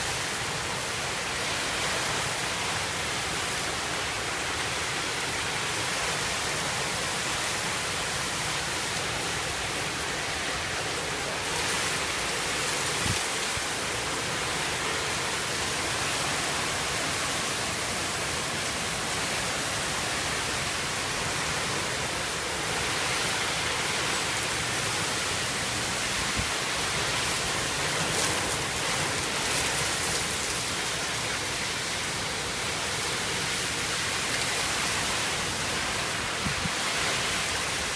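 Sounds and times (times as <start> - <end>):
heavy rain pouring: 0.0 - 37.9.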